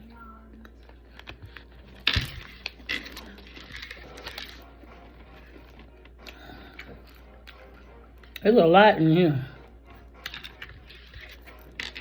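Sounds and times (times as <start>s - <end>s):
food packaging crinkling: 0.9s - 7.6s.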